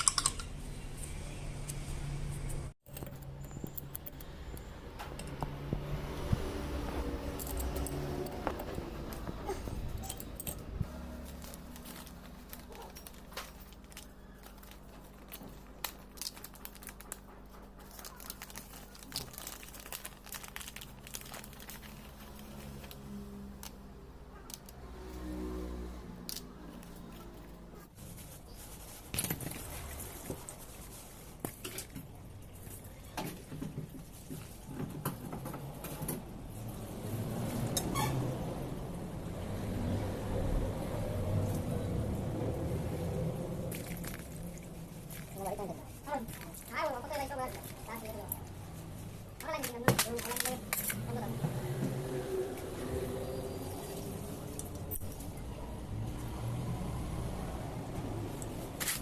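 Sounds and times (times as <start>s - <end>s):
metal parts and tools clinking: 0.0s - 0.6s, 7.3s - 8.7s, 9.7s - 15.4s.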